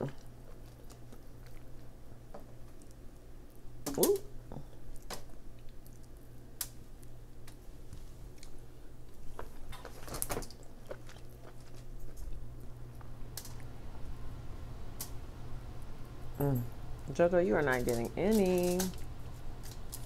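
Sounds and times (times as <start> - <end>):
person chewing: 0.0 - 3.7, 4.3 - 13.9
faint low hum: 0.0 - 20.0.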